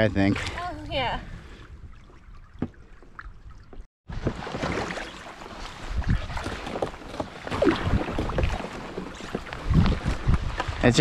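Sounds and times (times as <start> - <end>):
paddle strokes splashing water: 1.4 - 11.0
wind buffeting microphone: 7.6 - 11.0.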